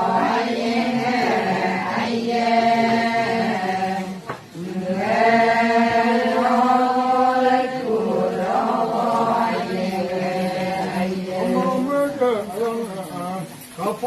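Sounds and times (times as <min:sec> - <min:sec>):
person chanting held notes: 0:00.0 - 0:14.0.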